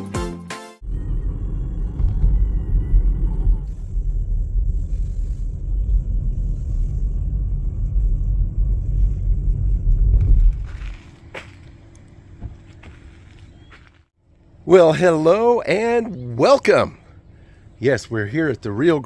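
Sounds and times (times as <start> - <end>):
wind buffeting microphone: 0.8 - 13.6.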